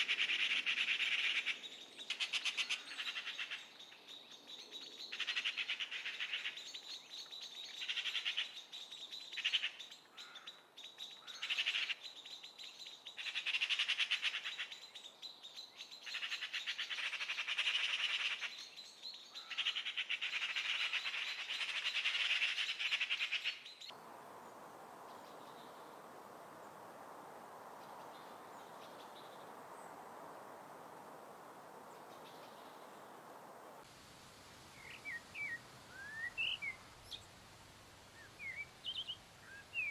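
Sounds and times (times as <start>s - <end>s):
steady hiss: 23.8s - 39.9s
faint bird chirps: 34.7s - 37.4s, 38.1s - 39.9s
bird twittering song: 34.8s - 37.3s, 38.2s - 39.9s.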